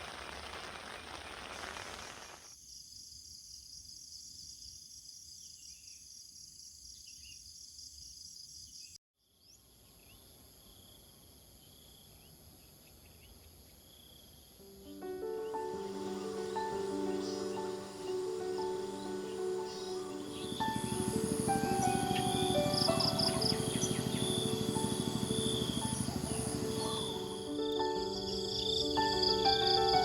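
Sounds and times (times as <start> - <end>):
rain hissing: 0.0 - 2.5
insects trilling: 9.7 - 30.0
high insect drone: 10.1 - 30.0
music: 14.6 - 30.0.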